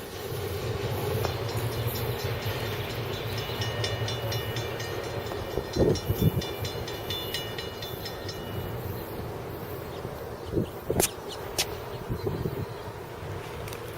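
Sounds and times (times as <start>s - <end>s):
wheels clicking over rails: 0.0s - 10.2s
high ringing from train wheels: 0.0s - 10.9s
freight train rumbling past: 0.0s - 13.9s.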